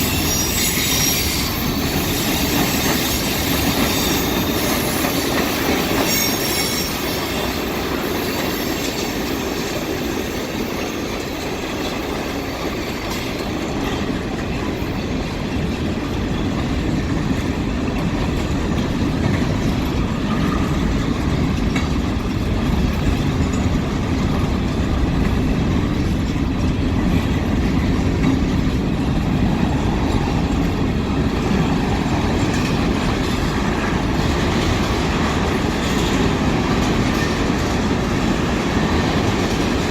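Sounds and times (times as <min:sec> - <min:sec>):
high wheel squeal: 0:00.0 - 0:09.2
freight train rumbling past: 0:00.0 - 0:39.9.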